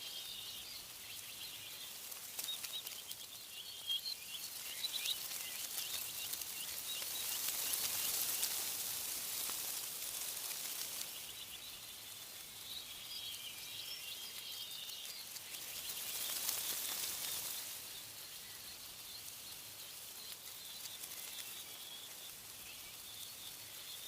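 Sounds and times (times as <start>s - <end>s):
small birds chirping: 0.0s - 24.0s
wind rustling tree leaves: 0.0s - 24.0s.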